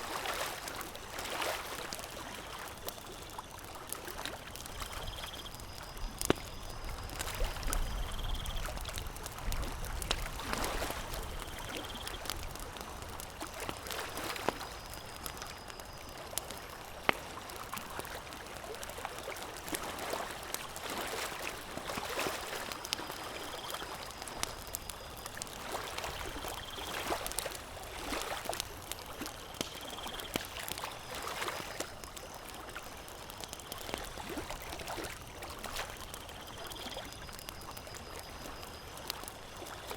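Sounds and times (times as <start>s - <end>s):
water lapping: 0.0s - 2.9s, 25.4s - 31.9s
campfire crackling: 0.0s - 39.9s.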